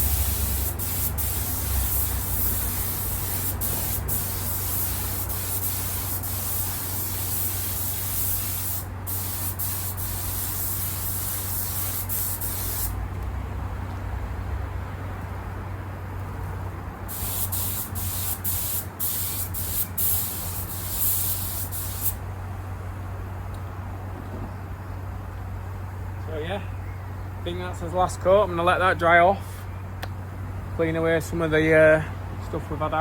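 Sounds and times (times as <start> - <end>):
spray gun hissing: 0.0 - 12.9, 17.1 - 22.2.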